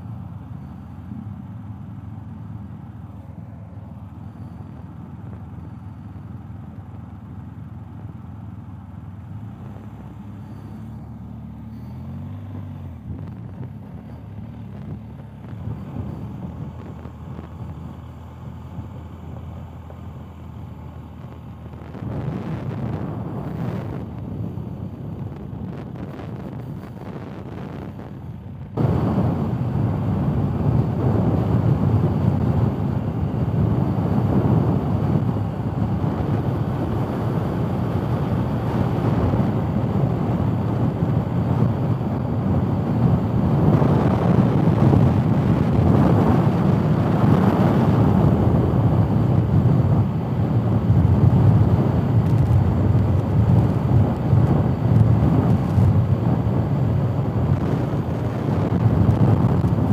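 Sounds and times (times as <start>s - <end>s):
gravel road noise: 0.0s - 59.9s
motorcycle engine running: 0.0s - 59.9s
wind on microphone: 21.8s - 28.2s, 28.8s - 59.9s.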